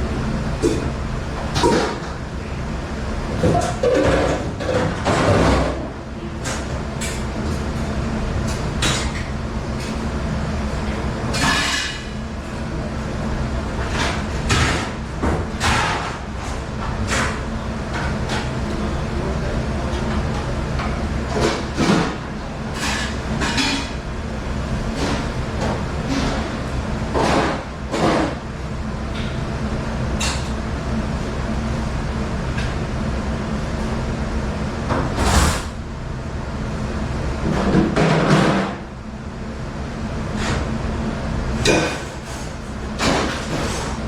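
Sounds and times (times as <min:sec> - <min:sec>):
steady machine hum: 0:00.0 - 0:44.0
dishware and trays clattering: 0:03.4 - 0:06.7, 0:11.3 - 0:12.2, 0:13.9 - 0:17.4, 0:20.0 - 0:24.0, 0:41.6 - 0:44.0.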